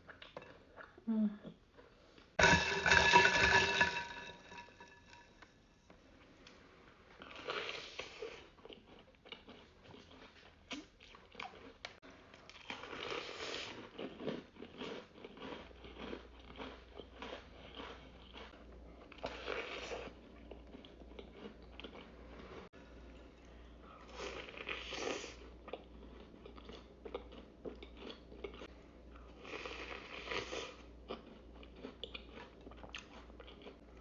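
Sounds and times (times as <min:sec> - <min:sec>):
chewing: 0:07.2 - 0:22.4, 0:23.1 - 0:34.0.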